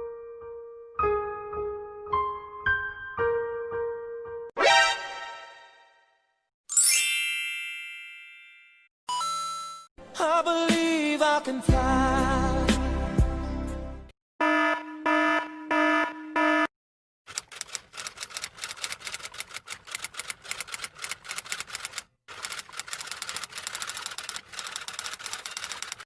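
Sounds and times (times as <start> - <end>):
typewriter keys clacking: 17.3 - 26.0.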